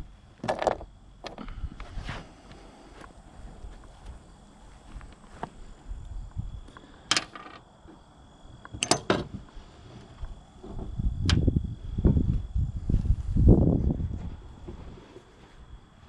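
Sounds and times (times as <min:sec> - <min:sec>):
low rumbling handling noise: 0:03.1 - 0:15.9.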